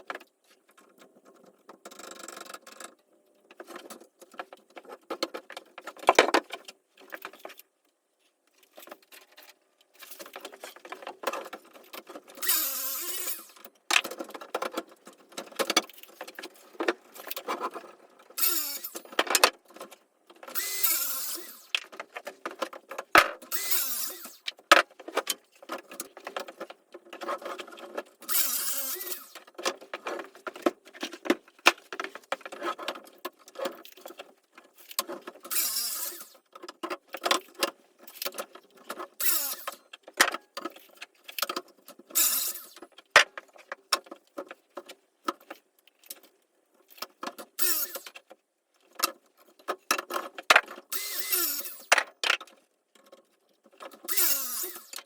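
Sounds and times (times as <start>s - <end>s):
rasping strokes: 20.5s - 21.8s, 23.5s - 24.5s.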